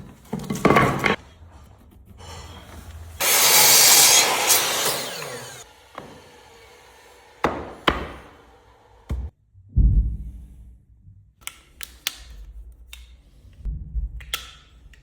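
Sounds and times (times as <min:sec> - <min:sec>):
wood being sawn: 0:02.2 - 0:09.3.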